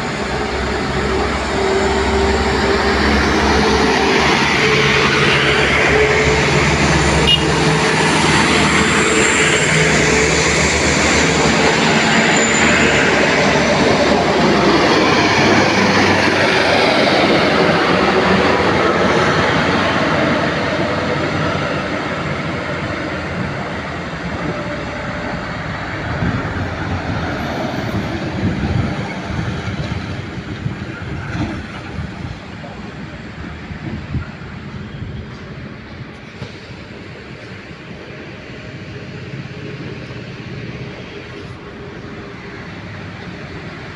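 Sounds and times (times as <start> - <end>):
loaded truck passing by: 0.0 - 43.9.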